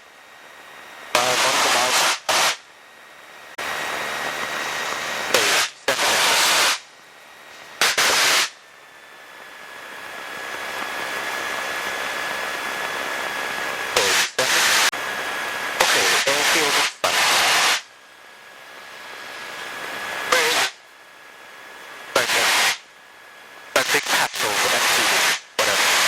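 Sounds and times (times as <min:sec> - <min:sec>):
faint steady whine: 0:00.0 - 0:26.0
radio static bursts: 0:01.1 - 0:02.6, 0:03.6 - 0:06.9, 0:07.6 - 0:08.6, 0:09.8 - 0:17.9, 0:18.8 - 0:20.8, 0:21.5 - 0:22.9, 0:23.7 - 0:26.0.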